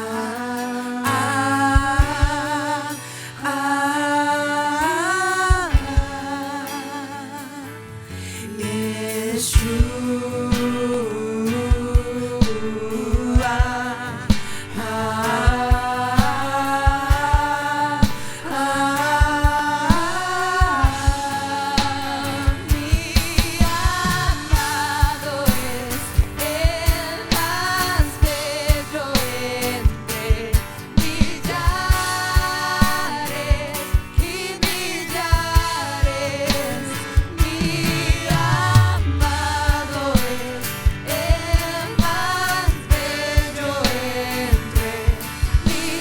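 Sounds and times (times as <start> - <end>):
person singing with vibrato: 0.0 - 46.0
kick drum beat: 1.8 - 2.5, 5.5 - 6.2, 11.7 - 14.7, 15.5 - 18.4, 19.2 - 29.0, 29.8 - 36.2, 37.1 - 43.6.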